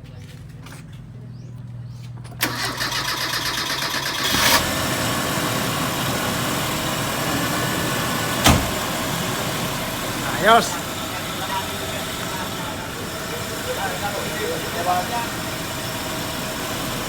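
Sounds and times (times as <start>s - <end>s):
car engine starting and running: 2.2s - 17.0s.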